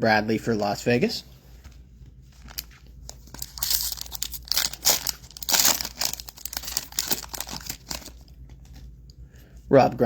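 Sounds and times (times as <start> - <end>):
foil wrapper crinkling: 2.3 - 8.9
foil wrapper tearing: 2.4 - 8.8.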